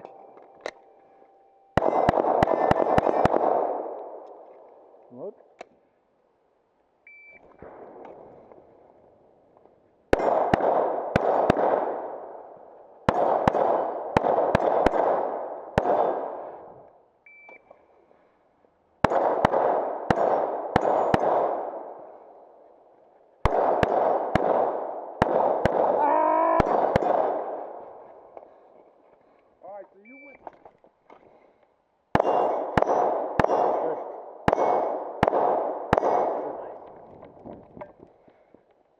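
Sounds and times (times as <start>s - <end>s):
pistol shots with ringing echo: 0.0s - 5.0s, 7.5s - 8.5s, 10.1s - 17.6s, 19.0s - 22.6s, 23.4s - 28.6s, 32.1s - 36.9s.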